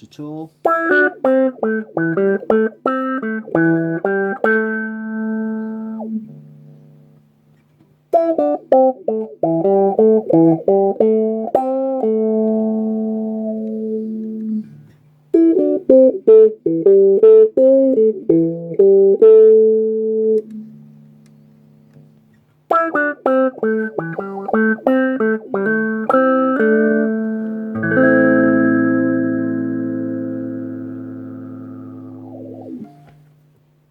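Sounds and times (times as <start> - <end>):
electric guitar picked notes: 0.6 - 7.3, 8.1 - 33.4
low steady hum: 23.3 - 33.9.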